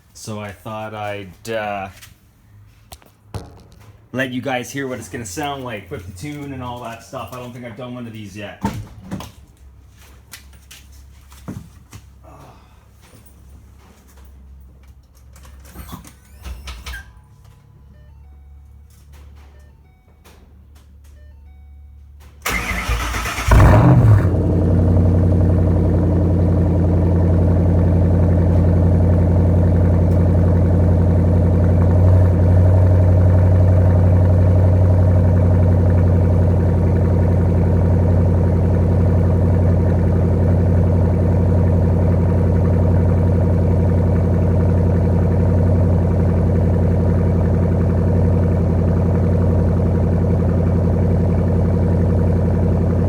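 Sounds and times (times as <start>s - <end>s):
car engine idling: 22.4s - 53.0s
starter motor cranking: 22.5s - 24.3s.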